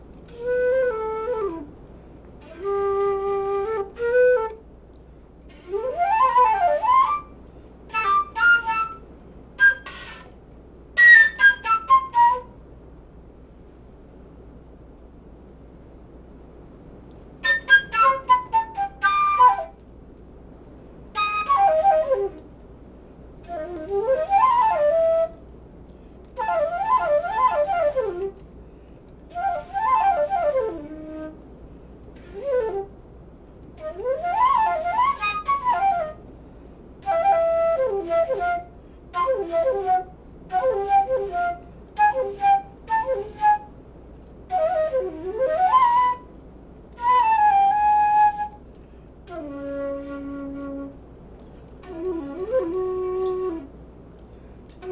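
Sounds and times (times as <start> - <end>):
flute playing quick phrases: 0.3 - 1.8, 5.5 - 9.0, 9.6 - 10.4, 17.4 - 19.8, 21.2 - 22.5, 23.5 - 25.4, 26.4 - 28.4, 29.3 - 31.4, 32.2 - 32.9, 33.8 - 36.3, 37.0 - 43.7, 44.5 - 46.3, 51.8 - 53.8.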